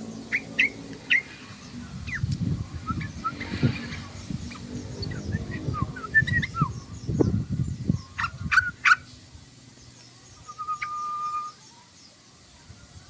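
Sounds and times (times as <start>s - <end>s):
bird chattering whistled notes: 2.0s - 9.1s, 10.4s - 11.6s.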